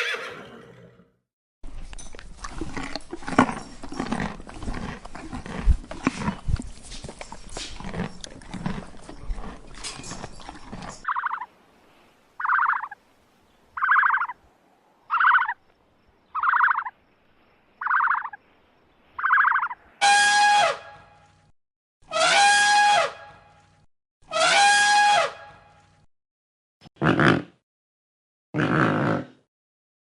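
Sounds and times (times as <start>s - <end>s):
rasping animal calls: 7.8s - 11.5s, 12.4s - 13.0s, 13.8s - 14.4s, 15.1s - 15.6s, 16.4s - 16.9s, 17.8s - 18.4s, 19.2s - 20.7s.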